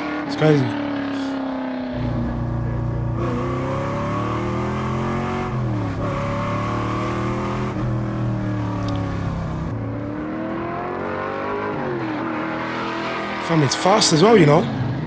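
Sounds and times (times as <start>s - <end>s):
car engine running under throttle: 0.0s - 15.0s.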